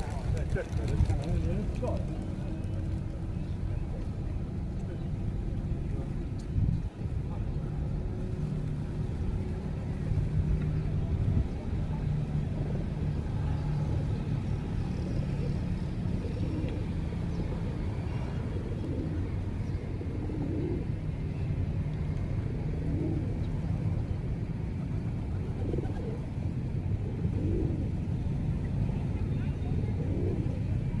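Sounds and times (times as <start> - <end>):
pigeons cooing: 14.9 - 21.4, 22.4 - 23.8, 25.0 - 28.1, 29.7 - 30.8.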